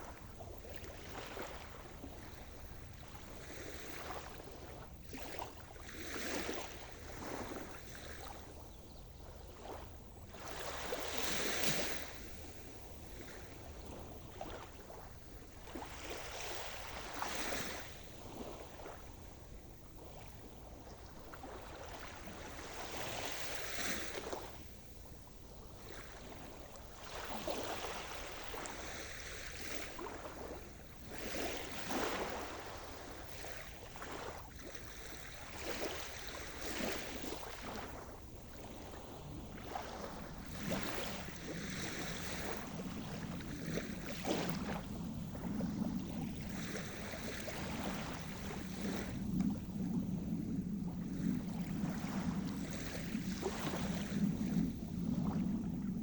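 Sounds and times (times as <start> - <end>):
waves breaking: 0.0 - 56.0.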